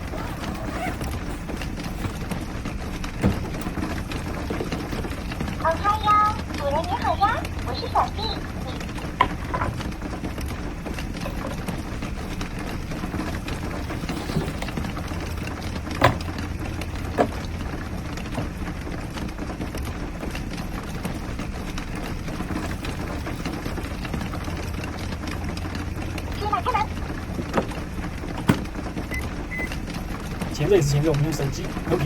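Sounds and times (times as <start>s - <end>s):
rain on a camper roof: 0.0s - 32.0s.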